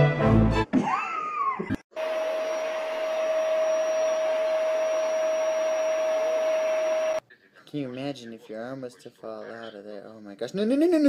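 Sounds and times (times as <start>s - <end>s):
small motor appliance whining: 2.0s - 7.2s.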